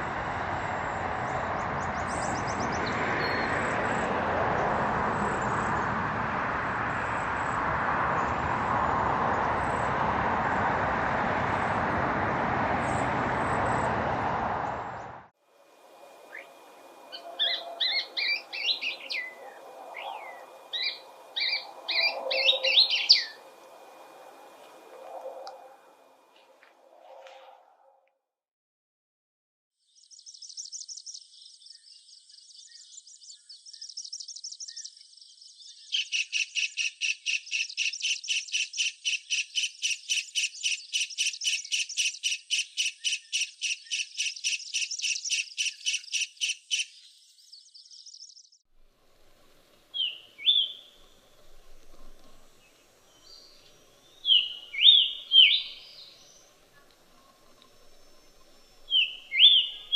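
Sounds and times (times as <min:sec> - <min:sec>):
bird chirps: 0:01.6 - 0:03.6, 0:16.3 - 0:25.6, 0:29.9 - 0:48.6, 0:49.9 - 0:59.9
bird trilling: 0:16.3 - 0:16.5, 0:17.1 - 0:25.9, 0:49.9 - 0:52.2, 0:53.2 - 0:59.9.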